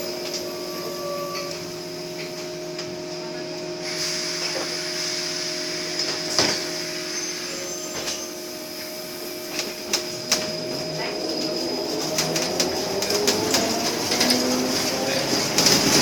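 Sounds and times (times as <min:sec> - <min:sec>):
bus engine hum: 0:00.0 - 0:16.0
hiss: 0:03.8 - 0:10.4.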